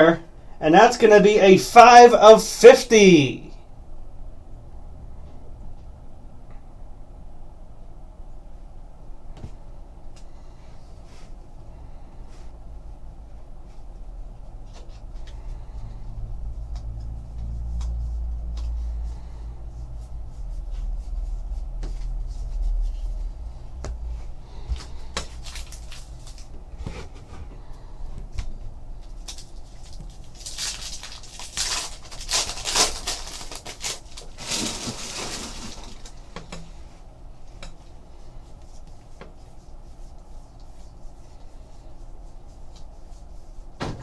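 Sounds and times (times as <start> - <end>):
card packs rustling: 24.8 - 26.6, 29.2 - 36.3.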